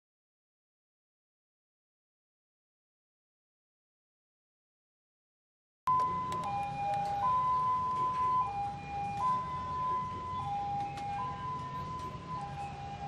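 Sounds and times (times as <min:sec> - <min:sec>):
two-tone siren: 0:05.9 - 0:13.0.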